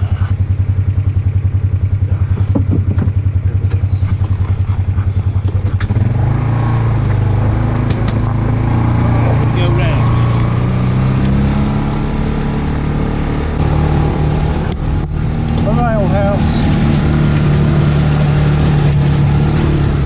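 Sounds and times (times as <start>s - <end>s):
vehicle engine chugging: 0.0s - 20.0s.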